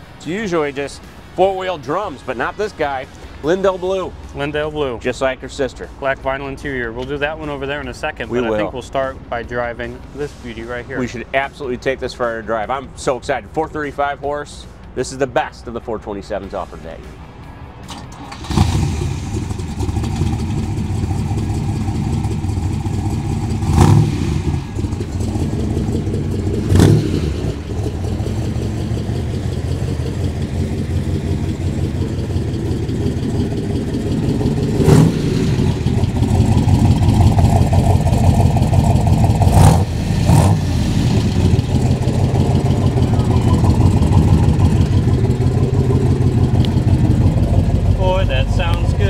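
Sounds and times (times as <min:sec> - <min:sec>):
car engine lumpy idle: 0:17.9 - 0:49.0
engine revving: 0:17.9 - 0:49.0.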